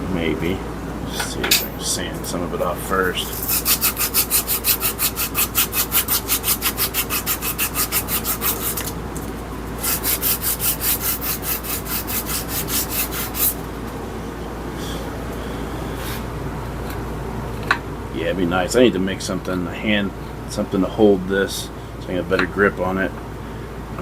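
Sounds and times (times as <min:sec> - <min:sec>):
sandpaper sanding wood: 0:03.3 - 0:08.9, 0:09.8 - 0:13.6.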